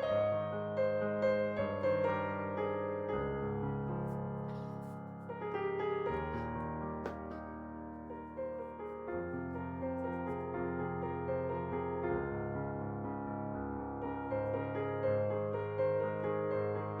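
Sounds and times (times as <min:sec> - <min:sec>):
solo piano music: 0:00.0 - 0:17.0.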